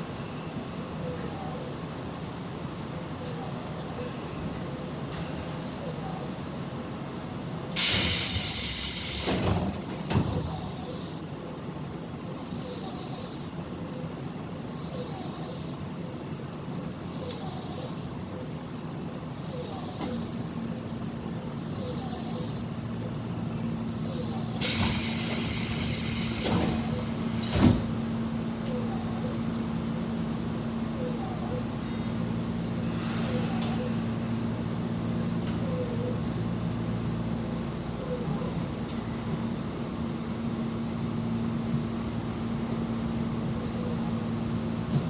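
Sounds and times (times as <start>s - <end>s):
compressed air hissing: 7.8s - 9.6s, 23.9s - 27.6s.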